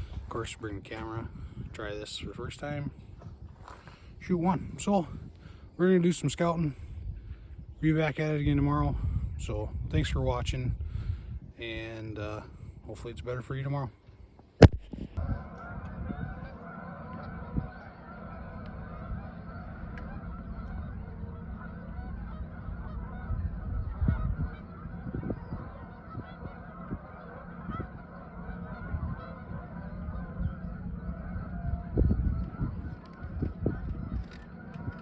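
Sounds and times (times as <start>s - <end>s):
wind on microphone: 0.0s - 13.5s, 14.6s - 35.0s
geese honking: 15.2s - 35.0s.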